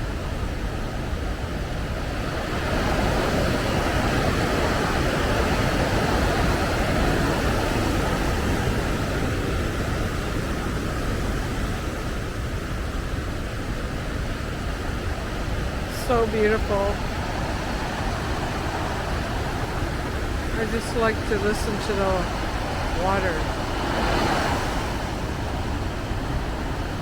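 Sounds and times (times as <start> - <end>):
waterfall rushing: 15.8 - 27.0.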